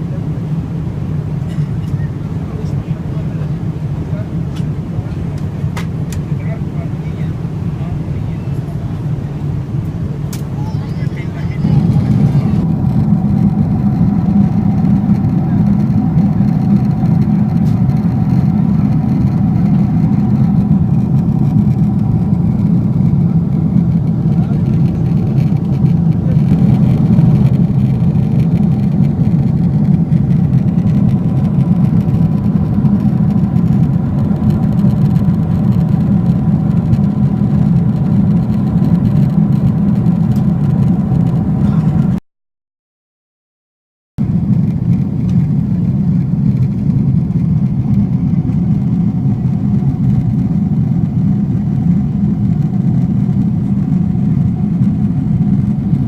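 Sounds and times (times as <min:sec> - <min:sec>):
aircraft cabin roar: 0:00.0 - 0:42.2, 0:44.2 - 0:56.0
faint steady hums: 0:00.0 - 0:42.2.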